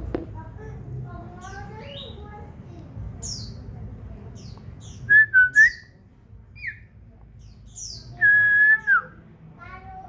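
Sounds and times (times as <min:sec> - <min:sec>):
bird chirping and whistling: 0:05.0 - 0:05.9, 0:06.6 - 0:06.8, 0:07.9 - 0:09.2.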